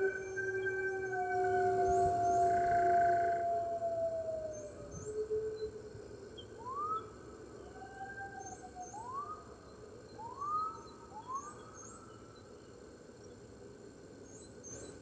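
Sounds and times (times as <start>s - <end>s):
wolves howling in chorus: 0.0s - 5.8s
long low wolf howl: 0.0s - 5.9s, 7.7s - 9.3s.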